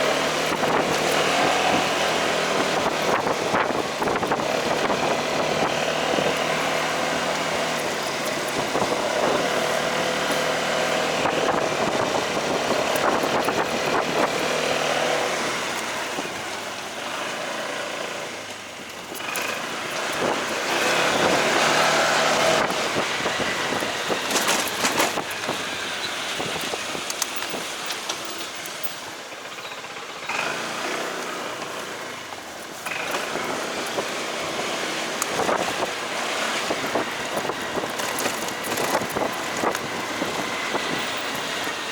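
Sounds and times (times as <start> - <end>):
motorcycle engine running: 0.0 - 41.9
road and wind noise: 0.0 - 41.9.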